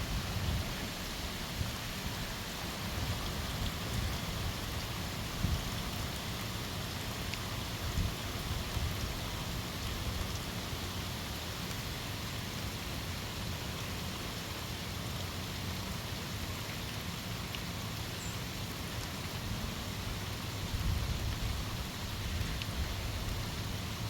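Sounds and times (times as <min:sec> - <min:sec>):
wind rumble on microphone: 0:00.0 - 0:02.2, 0:03.0 - 0:06.0, 0:07.8 - 0:10.4, 0:20.6 - 0:24.0
rain hissing: 0:00.0 - 0:24.0.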